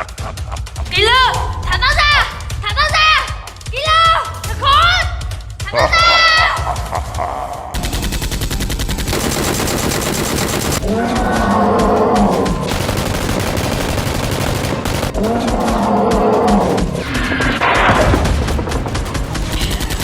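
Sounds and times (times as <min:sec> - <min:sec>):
rapid automatic gunfire: 0:07.8 - 0:20.0
low bellowing cry: 0:10.8 - 0:12.7, 0:15.2 - 0:17.8.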